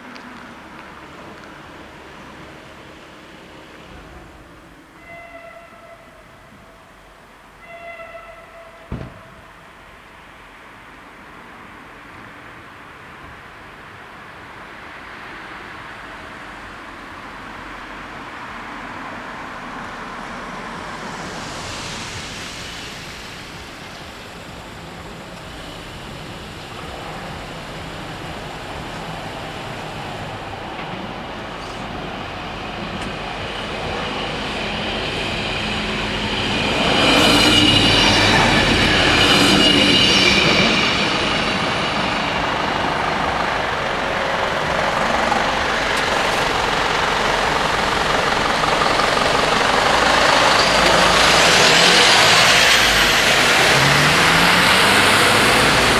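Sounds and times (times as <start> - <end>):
diesel railcar passing: 0.0 - 55.9
wheels squealing: 18.9 - 55.9.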